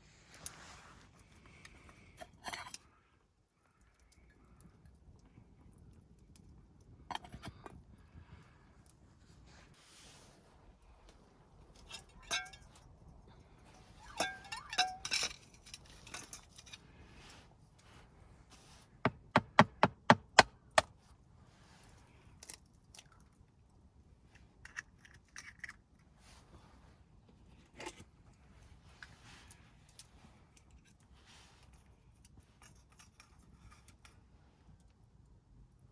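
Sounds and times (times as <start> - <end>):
clatters of handling: 11.1 - 17.9, 24.2 - 34.9.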